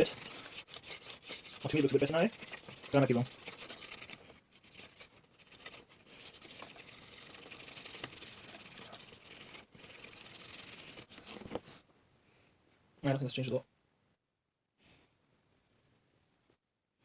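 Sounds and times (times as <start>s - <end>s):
rubbing and scratching on camera body: 0.0s - 11.9s.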